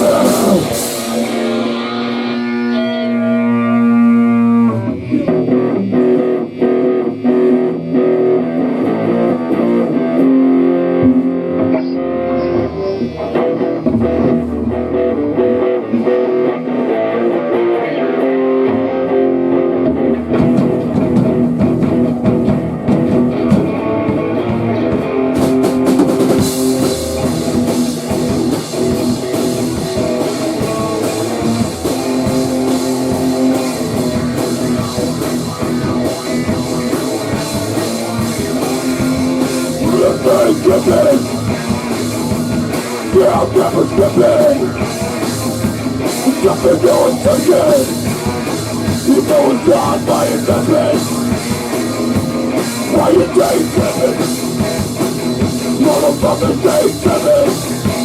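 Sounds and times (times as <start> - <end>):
drum kit and cymbals: 0.0 - 3.2, 20.3 - 58.0
rock guitar riffing: 0.0 - 58.0.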